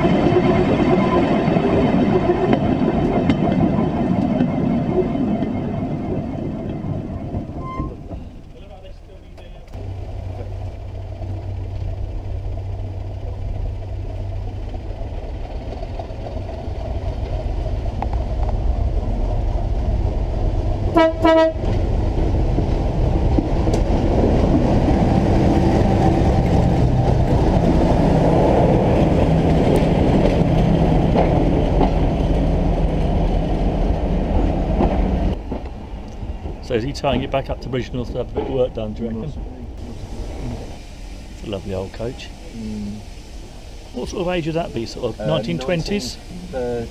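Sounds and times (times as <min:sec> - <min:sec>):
steel wheels rumbling on rails: 0:00.0 - 0:46.9
vehicle engine drone: 0:08.3 - 0:21.0, 0:39.5 - 0:46.9.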